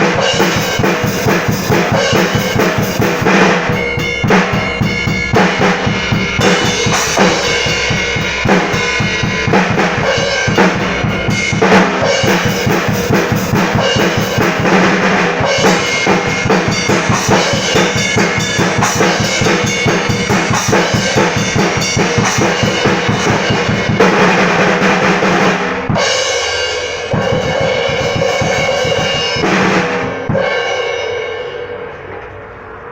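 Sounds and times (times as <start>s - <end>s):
cymbals ringing: 0.0s - 24.0s, 26.0s - 32.8s
bass drum and snare strokes: 0.0s - 26.2s.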